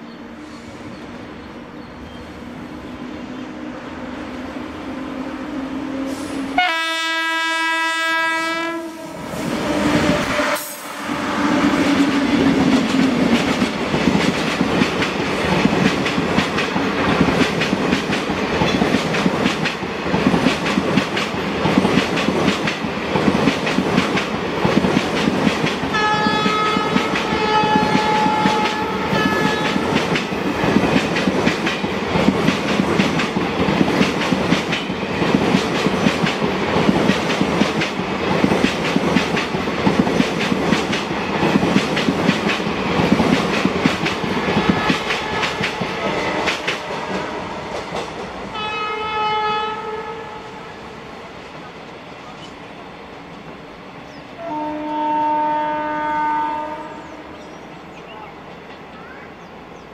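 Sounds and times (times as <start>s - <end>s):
train horn: 5.4s - 12.8s, 25.9s - 30.0s, 44.5s - 47.9s, 48.5s - 51.0s, 54.4s - 57.4s
train wheels clattering over rail joints: 12.0s - 48.3s.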